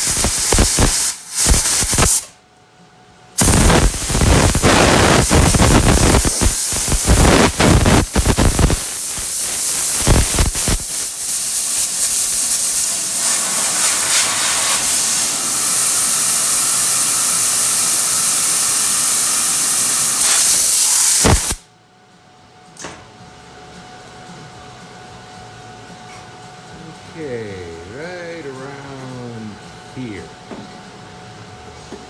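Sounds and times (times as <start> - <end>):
loud steady hiss: 0.0 - 2.3, 3.4 - 21.6
welder crackling in short bursts: 0.0 - 2.4, 3.4 - 21.6.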